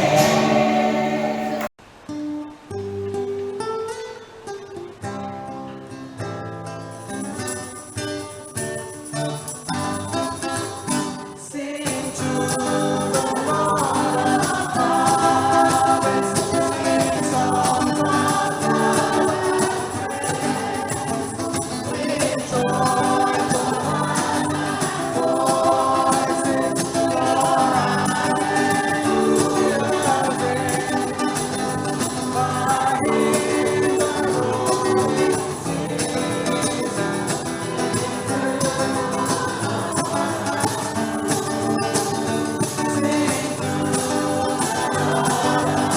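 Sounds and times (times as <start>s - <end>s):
choir singing gospel music: 0.0s - 1.7s, 10.4s - 45.9s
instrumental accompaniment: 0.0s - 1.7s, 13.2s - 45.9s
tambourine jingling: 11.9s - 45.9s.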